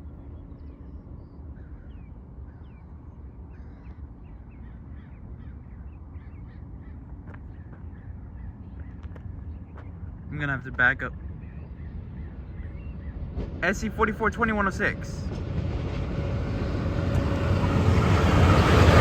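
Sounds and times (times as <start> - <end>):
birds chirping: 0.2 - 19.0
low rumble: 11.2 - 19.0.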